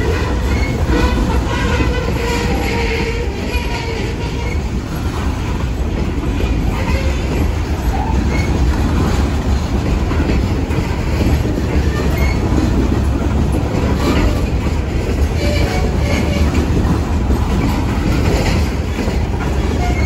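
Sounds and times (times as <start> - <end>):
steel wheels rumbling on rail: 0.0 - 20.0.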